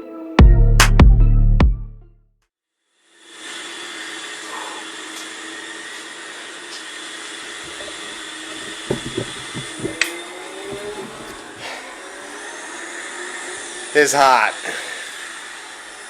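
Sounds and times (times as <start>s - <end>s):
small electric motor whirring: 3.0s - 16.0s
light knocks: 8.7s - 11.4s.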